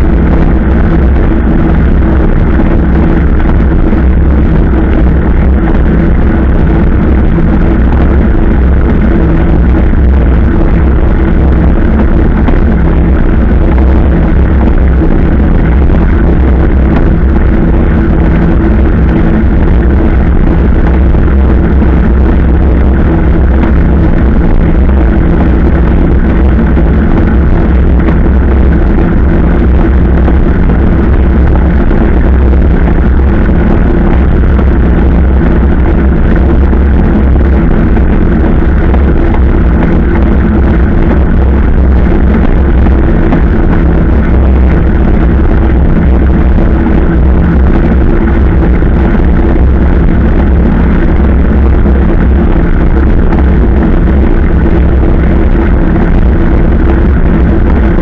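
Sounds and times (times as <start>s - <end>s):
wind rumble on microphone: 0.0s - 58.0s.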